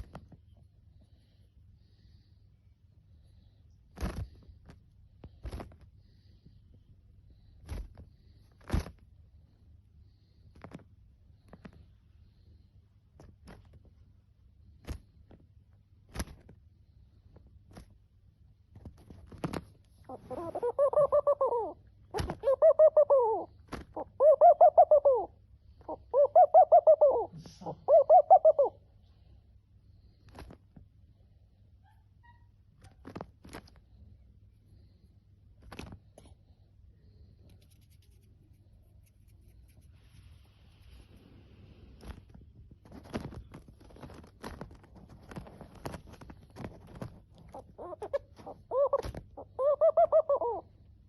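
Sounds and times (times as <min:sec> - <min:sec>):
doves wing slaps and flaps: 0:03.9 - 0:05.8, 0:07.6 - 0:09.0, 0:13.2 - 0:13.8, 0:14.8 - 0:15.4, 0:16.0 - 0:16.6, 0:17.7 - 0:18.0, 0:18.7 - 0:19.8, 0:22.2 - 0:22.6, 0:23.6 - 0:24.1, 0:30.3 - 0:30.7, 0:32.8 - 0:33.8, 0:35.6 - 0:36.0, 0:42.0 - 0:49.3
dove hooting: 0:20.1 - 0:28.9, 0:45.2 - 0:50.9.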